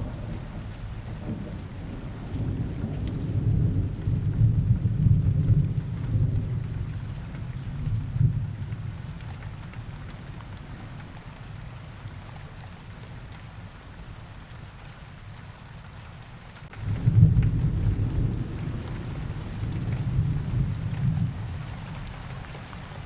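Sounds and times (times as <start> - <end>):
thunder rumbling: 0.0 - 9.2, 16.8 - 22.0
steady rain falling: 0.0 - 23.0.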